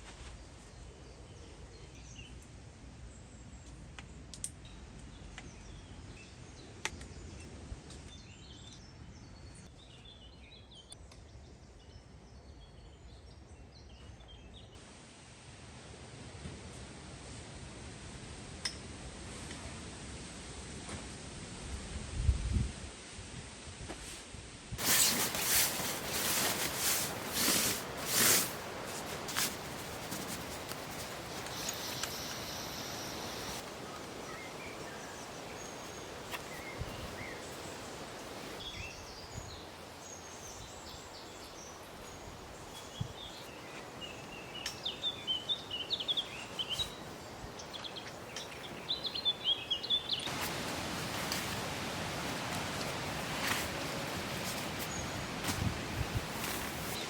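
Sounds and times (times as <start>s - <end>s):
steady hiss: 24.0s - 57.0s
loud rustling handling noise: 24.8s - 38.6s, 50.3s - 57.0s
small birds chirping: 24.8s - 57.0s.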